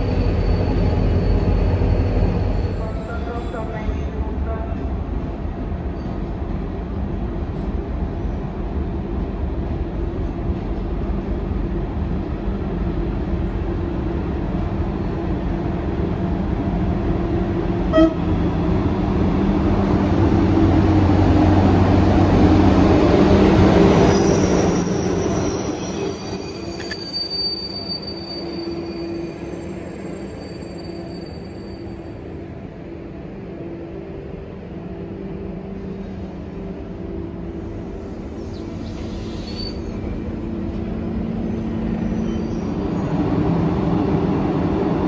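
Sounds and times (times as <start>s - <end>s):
wheels squealing: 24.1s - 31.9s, 38.4s - 40.2s.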